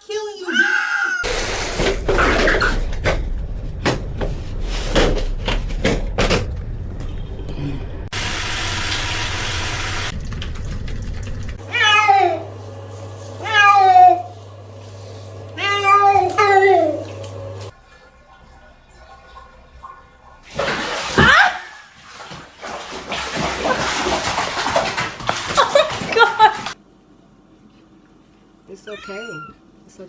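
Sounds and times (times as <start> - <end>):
cat meowing: 11.6 - 12.5, 13.4 - 14.3, 15.6 - 16.9, 28.8 - 29.6
water splashing: 17.8 - 26.8
rushing water: 19.0 - 26.8.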